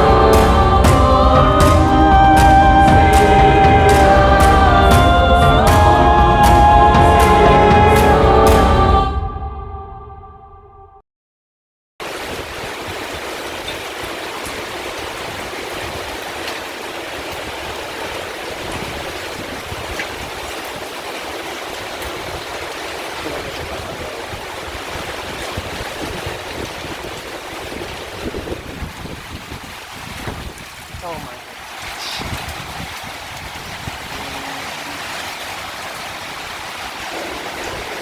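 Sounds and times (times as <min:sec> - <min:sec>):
rain pouring down: 0:00.0 - 0:08.9, 0:12.0 - 0:38.0
music: 0:00.0 - 0:11.0.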